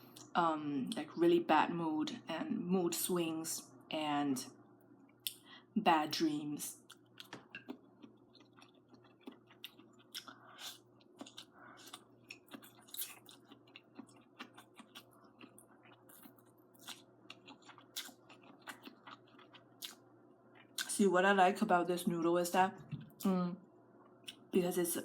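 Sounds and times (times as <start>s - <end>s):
close-miked chewing: 6.8s - 20.0s, 20.6s - 20.9s.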